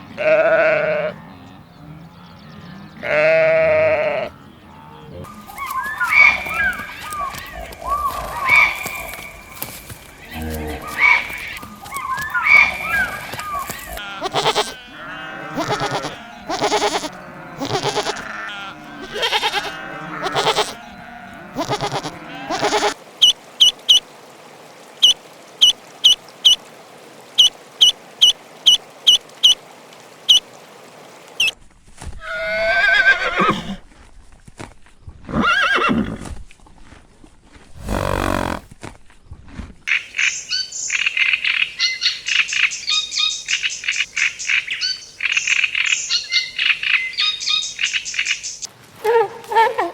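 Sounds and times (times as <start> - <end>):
animal bleating: 0.0 - 1.2, 3.0 - 4.4, 5.5 - 23.0, 37.8 - 38.7
drawn-out animal calls: 5.2 - 24.0, 37.8 - 38.7.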